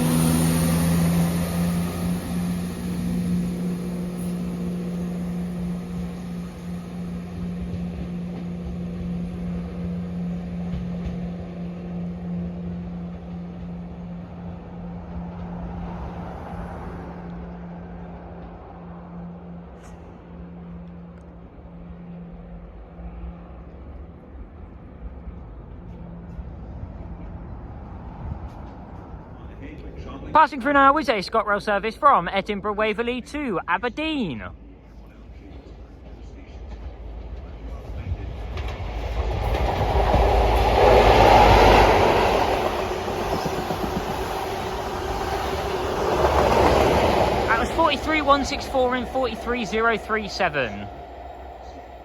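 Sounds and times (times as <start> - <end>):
distant diesel train engine hum: 0.0 - 52.0
outdoor rumble: 35.1 - 52.0.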